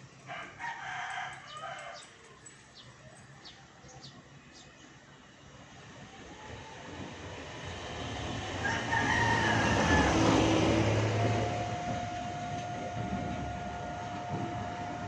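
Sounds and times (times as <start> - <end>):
rooster crowing: 0.3 - 2.1, 8.6 - 11.1.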